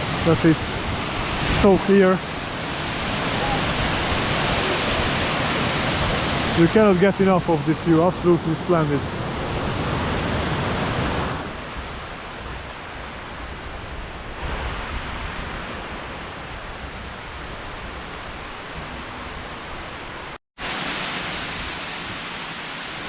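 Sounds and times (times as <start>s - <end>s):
waterfall rushing: 0.0s - 11.6s, 20.6s - 23.0s.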